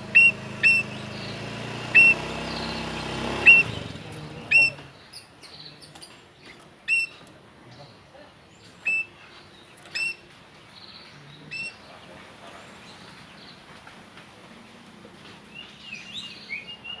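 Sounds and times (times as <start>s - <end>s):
bird whistling loudly: 0.1s - 1.0s, 1.9s - 2.8s, 3.4s - 3.8s, 4.5s - 4.8s, 6.9s - 7.2s, 8.8s - 9.1s, 9.9s - 10.2s, 11.5s - 11.8s
faint bird chirps: 0.1s - 8.0s, 8.6s - 12.1s.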